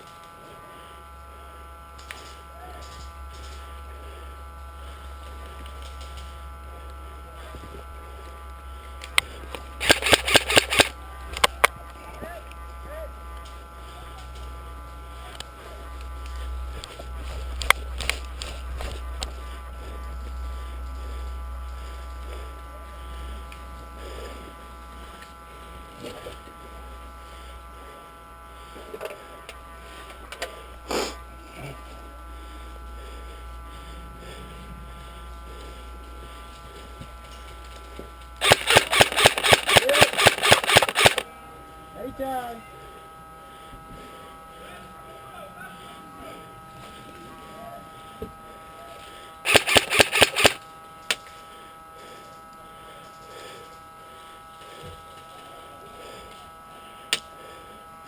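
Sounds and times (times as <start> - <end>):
low electrical hum: 0.0 - 58.0
airsoft gun shots: 9.8 - 10.9, 38.4 - 41.2, 49.5 - 50.6.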